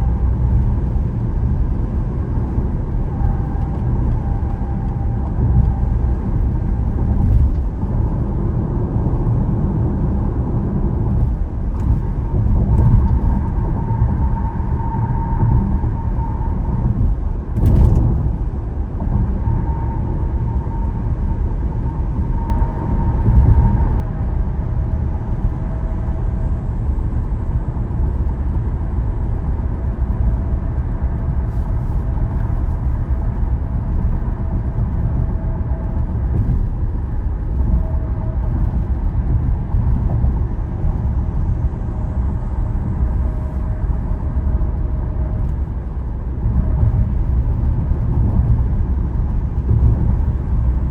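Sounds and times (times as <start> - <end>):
road and tyre noise: 0.0 - 50.9.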